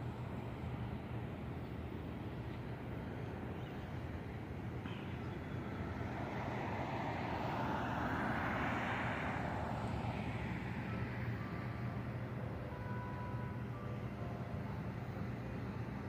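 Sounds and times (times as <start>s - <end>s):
low traffic hum: 0.0s - 16.0s
vehicle passing by: 5.7s - 11.3s.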